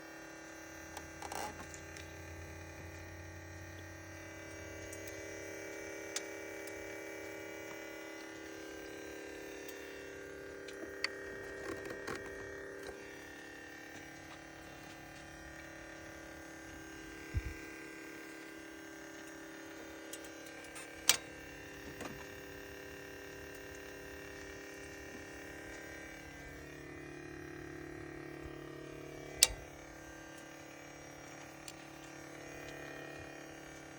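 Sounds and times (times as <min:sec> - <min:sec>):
car engine whine: 0:00.9 - 0:33.9
sharp clicks: 0:29.4 - 0:29.7.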